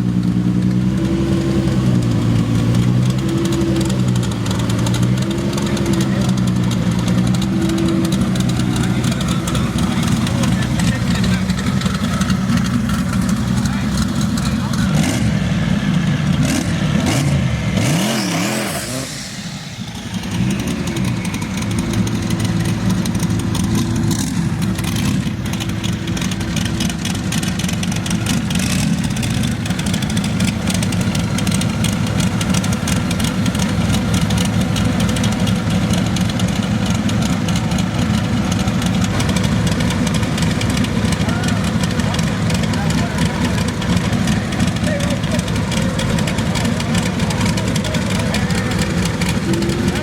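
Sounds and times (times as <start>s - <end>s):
race car engine revving: 0.0s - 50.0s.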